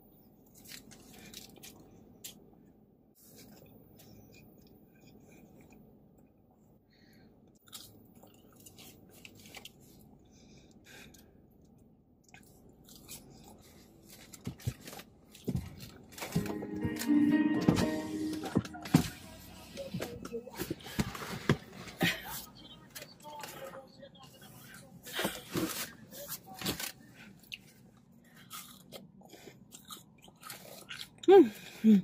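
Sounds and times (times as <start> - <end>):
person chewing food: 0.4 - 2.6, 3.2 - 16.7, 26.8 - 31.8.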